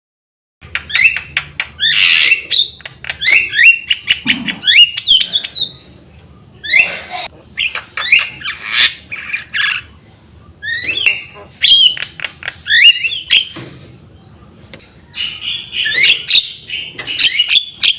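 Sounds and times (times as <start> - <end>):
bird whistling and squawking: 0.9 - 5.9, 6.6 - 9.9, 10.6 - 13.6, 15.1 - 17.9.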